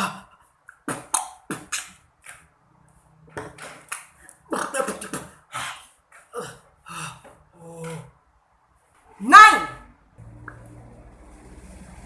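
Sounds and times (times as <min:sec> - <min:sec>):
beatboxing mouth percussion: 0:00.7 - 0:02.0.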